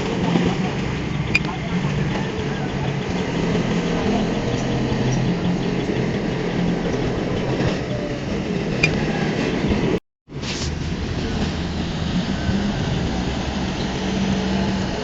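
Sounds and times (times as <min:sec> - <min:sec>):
diesel engine under load: 0:00.0 - 0:15.0.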